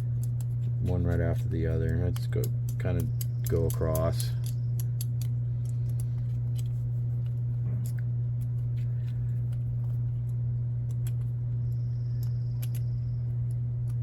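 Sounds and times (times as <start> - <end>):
hex driver clicking on screws: 0.0 - 6.7
steady low hum: 0.0 - 14.0.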